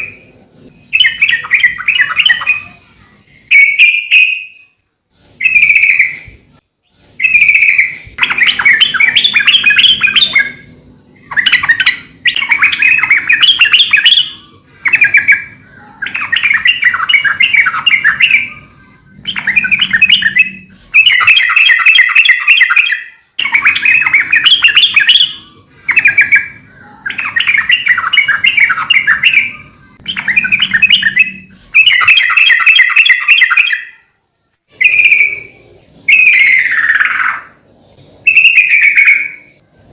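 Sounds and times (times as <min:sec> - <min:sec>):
bulbul singing chattering notes: 0:07.2 - 0:34.0.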